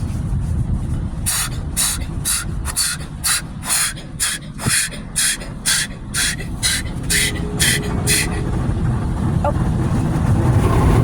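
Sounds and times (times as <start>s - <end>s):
steady low rumble: 0.0s - 11.0s
water jets hissing spray: 1.3s - 8.4s.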